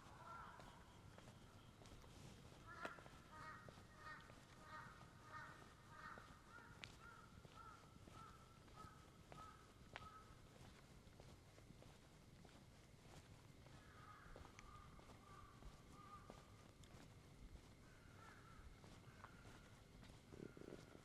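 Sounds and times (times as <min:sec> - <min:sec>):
crow cawing: 0:00.0 - 0:01.0, 0:02.6 - 0:10.4, 0:13.7 - 0:16.5, 0:17.8 - 0:21.0.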